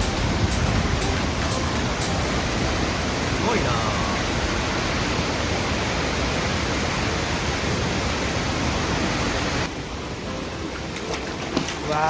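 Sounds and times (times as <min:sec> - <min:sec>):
waterfall roaring: 0:00.0 - 0:11.4.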